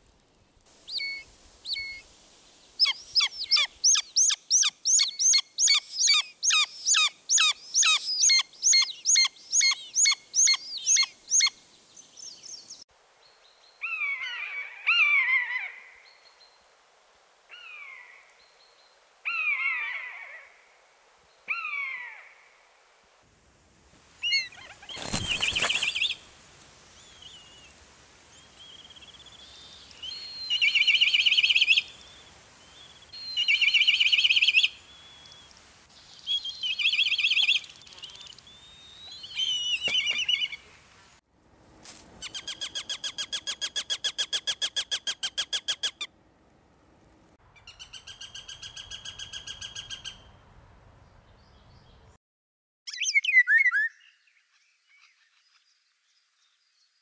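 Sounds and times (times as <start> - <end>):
bird call: 28.4 - 35.5, 36.2 - 40.8
bird trilled song: 52.9 - 55.7.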